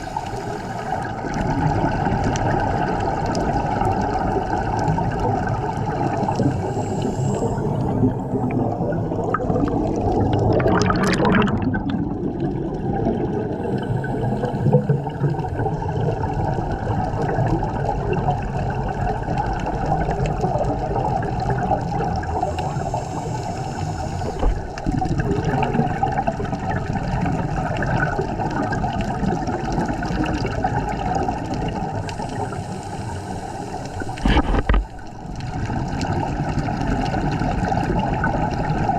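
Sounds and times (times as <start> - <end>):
underwater air bubbles gurgling: 0.0 - 38.9
sharp air hiss: 6.6 - 7.8, 22.6 - 24.7, 32.1 - 34.4.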